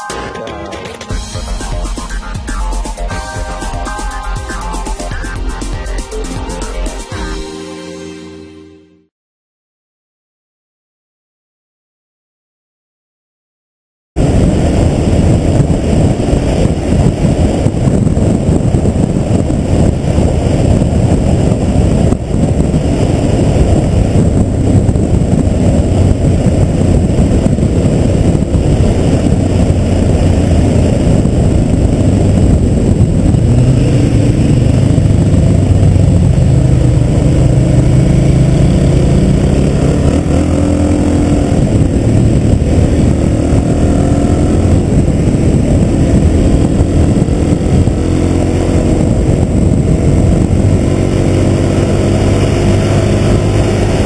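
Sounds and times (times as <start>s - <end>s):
motorcycle engine running: 14.2s - 54.0s
wind rumble: 14.2s - 54.0s.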